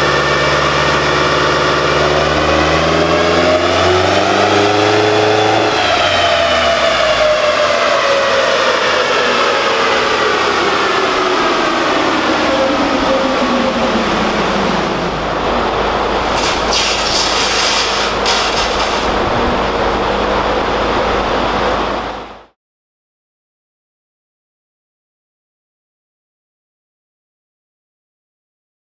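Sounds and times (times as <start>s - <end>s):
engine whine falling in pitch: 0.0s - 22.6s
low engine rumble: 0.0s - 22.6s
short hisses: 16.3s - 19.2s.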